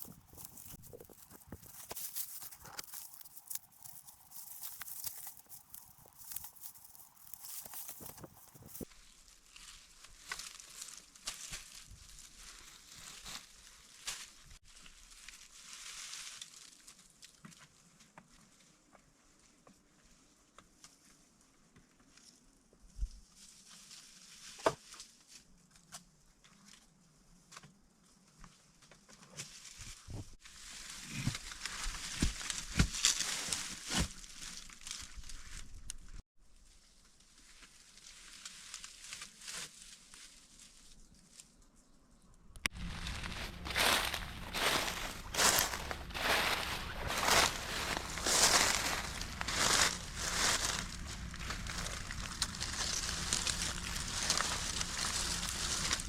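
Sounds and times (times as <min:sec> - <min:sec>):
rustling with sharp cracks: 0:00.0 - 0:08.9, 0:42.6 - 0:56.0.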